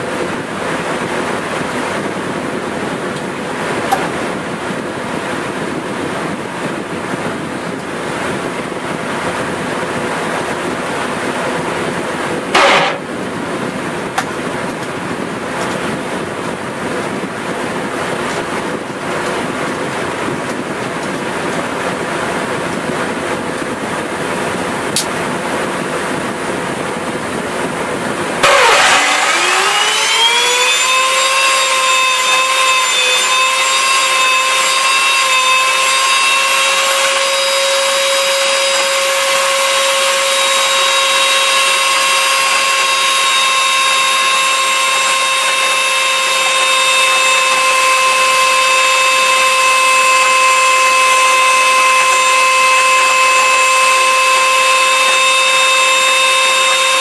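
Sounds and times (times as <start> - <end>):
blender motor whining: 28.4 - 57.0.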